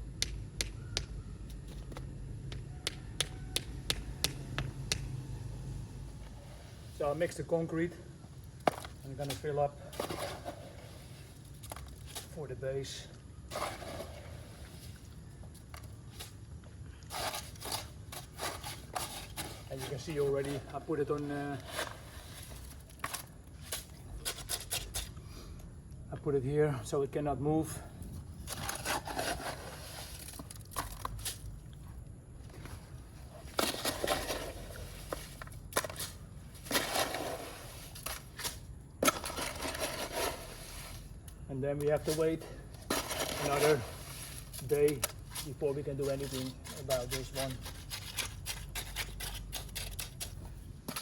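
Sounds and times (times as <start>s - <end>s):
tool scraping concrete mix: 8.7s - 15.1s, 17.0s - 25.2s, 28.4s - 31.4s, 32.6s - 51.0s.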